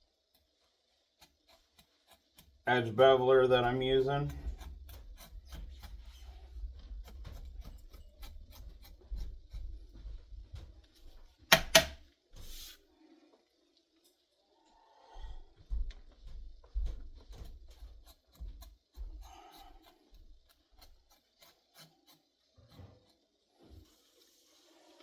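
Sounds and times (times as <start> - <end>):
edge beveler shaving leather: 1.2 - 10.1, 11.5 - 12.8, 17.1 - 23.2
sharp clicks: 11.5 - 12.0.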